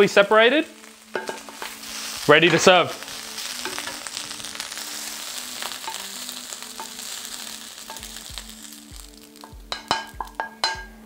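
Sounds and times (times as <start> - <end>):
fried rice sizzling in a pan: 0.0 - 10.9.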